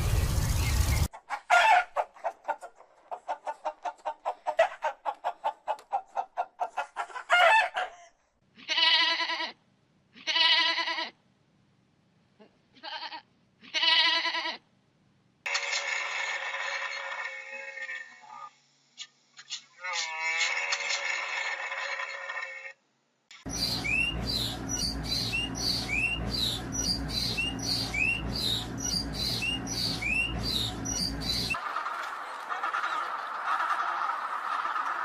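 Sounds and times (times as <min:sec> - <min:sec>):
clucking: 0:01.1 - 0:08.1, 0:23.5 - 0:35.0
wavering animal calls: 0:23.5 - 0:35.0.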